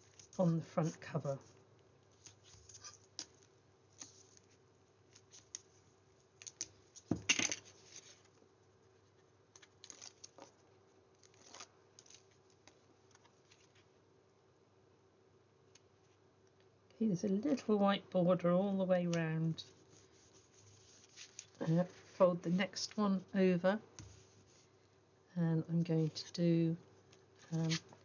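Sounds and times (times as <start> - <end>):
paper rustling: 0.0 - 5.8, 9.2 - 13.9, 19.7 - 22.2.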